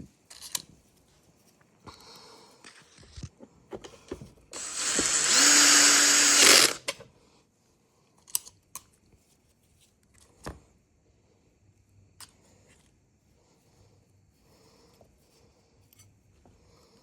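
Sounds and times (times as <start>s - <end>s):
power tool motor running: 4.6s - 6.9s.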